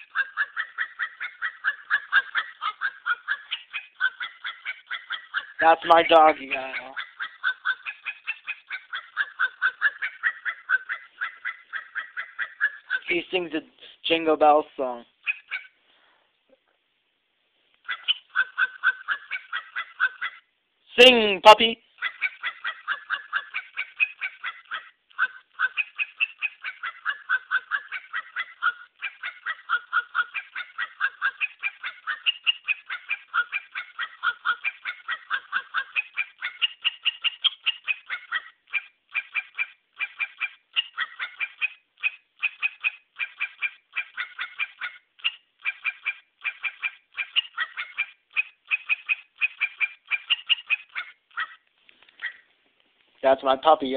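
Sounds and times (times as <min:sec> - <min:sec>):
puppy yipping: 0:00.0 - 0:13.2, 0:15.2 - 0:15.8, 0:17.8 - 0:20.5, 0:22.0 - 0:52.6.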